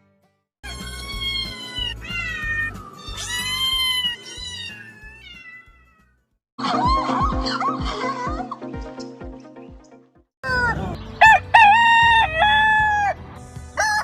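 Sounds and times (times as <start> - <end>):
background music: 0.0 - 5.2, 6.6 - 14.0
cat meowing: 0.6 - 6.1.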